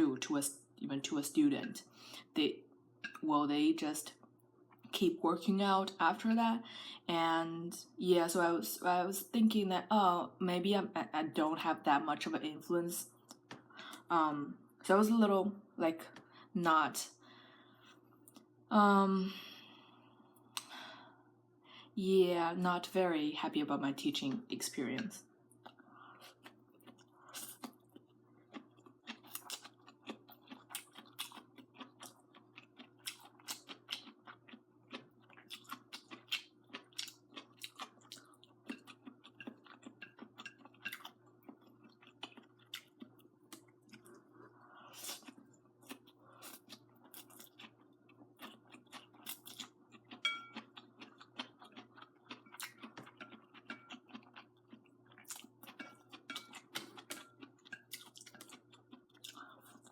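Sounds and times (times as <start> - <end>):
faint steady hum: 0.0 - 59.9
chewing noodles: 25.6 - 59.9.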